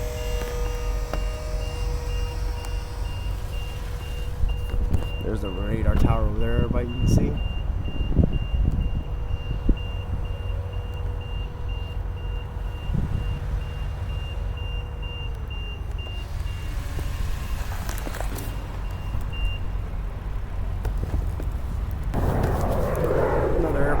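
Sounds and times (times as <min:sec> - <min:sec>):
vehicle idling rumble: 0:00.0 - 0:24.0
rush of noise: 0:22.1 - 0:24.0.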